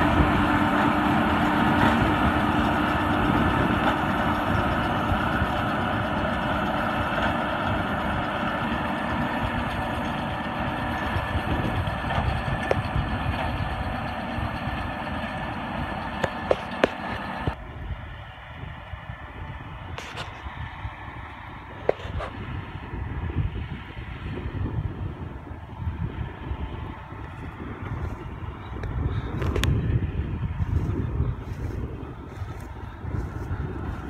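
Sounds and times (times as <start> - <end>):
tractor running: 0.0 - 34.0.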